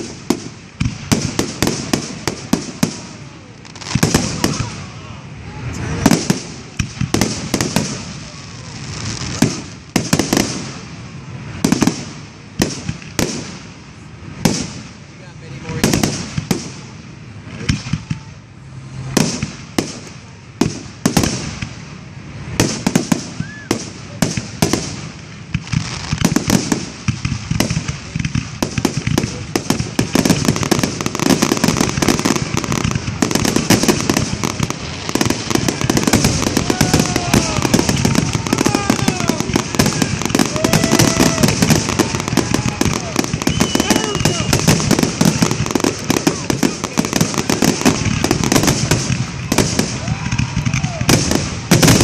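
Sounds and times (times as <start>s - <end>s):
fireworks bangs: 0.0s - 52.0s
fireworks crackle: 0.0s - 52.0s.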